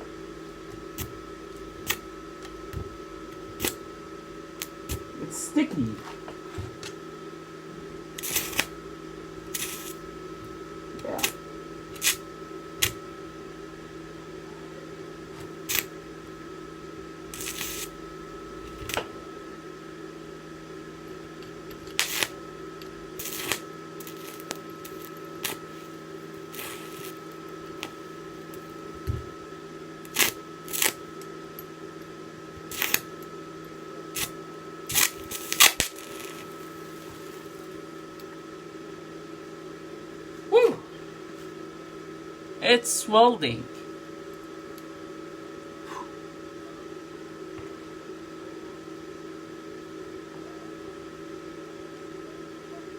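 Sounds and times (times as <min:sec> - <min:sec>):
arc welding crackles and pops: 0:00.0 - 0:07.1, 0:07.7 - 0:13.9, 0:15.2 - 0:19.4, 0:20.9 - 0:38.4
electrical hum: 0:00.0 - 0:52.9.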